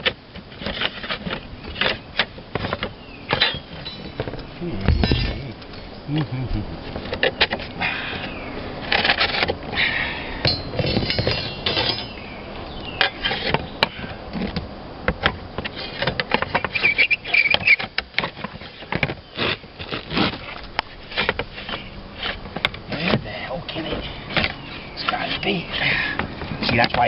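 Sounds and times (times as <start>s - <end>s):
short high squeals: 16.7s - 17.8s.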